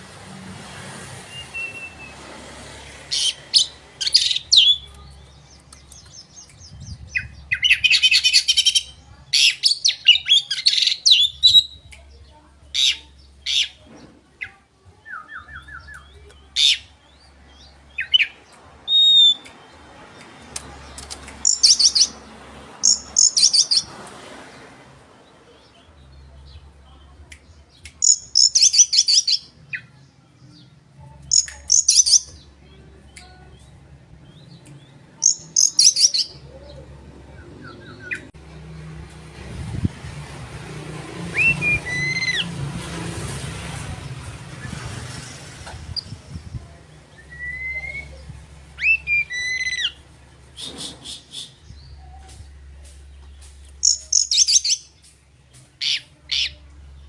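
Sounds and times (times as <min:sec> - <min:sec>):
broad background noise: 0:00.0 - 0:57.0
bird singing: 0:52.9 - 0:55.1.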